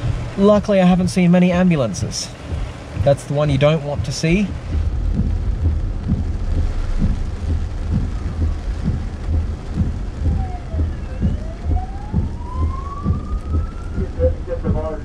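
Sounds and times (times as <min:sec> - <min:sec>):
heavy rain drumming on car roof: 0:00.0 - 0:15.0
faint whine rising in pitch: 0:05.0 - 0:15.0.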